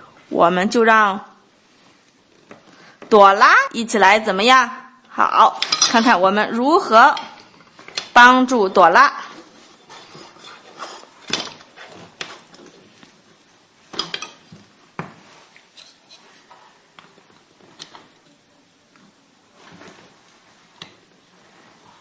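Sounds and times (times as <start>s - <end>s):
quiet rustling: 5.7s - 22.0s.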